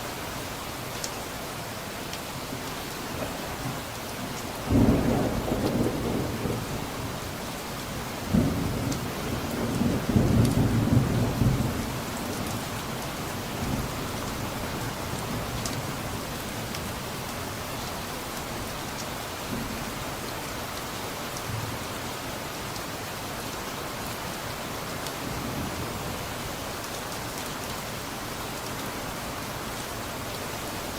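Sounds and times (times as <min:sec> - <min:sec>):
steady rain: 0:00.0 - 0:30.9
thunder rumbling: 0:04.7 - 0:07.0.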